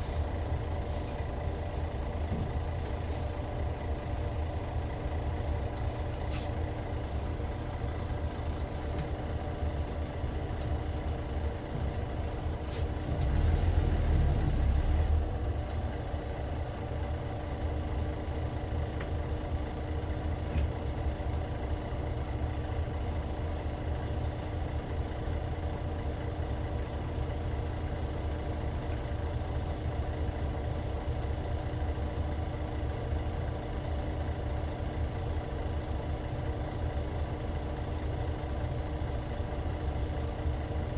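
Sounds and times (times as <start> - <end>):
diesel coach engine idling: 0.0 - 40.9
low engine rumble: 0.0 - 40.9.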